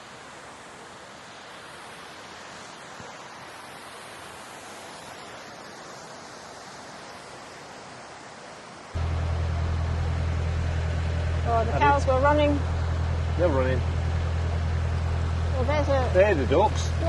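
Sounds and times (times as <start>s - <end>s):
water rushing through lock: 7.8s - 17.0s.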